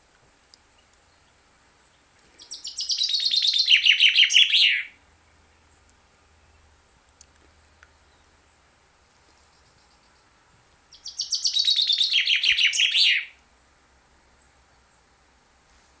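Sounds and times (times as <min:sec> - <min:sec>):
songbird rapid trill: 0:00.8 - 0:05.8, 0:09.4 - 0:13.4.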